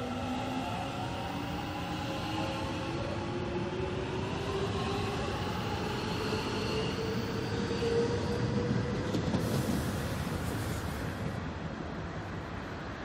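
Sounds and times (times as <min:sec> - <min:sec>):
wheels rumbling on rail: 0:06.8 - 0:13.0.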